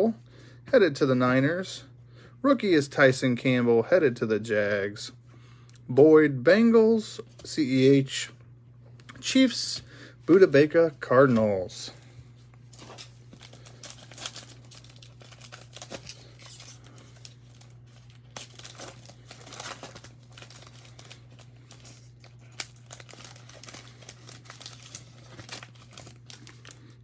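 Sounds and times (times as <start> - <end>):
foil wrapper crinkling and tearing: 12.7 - 27.0.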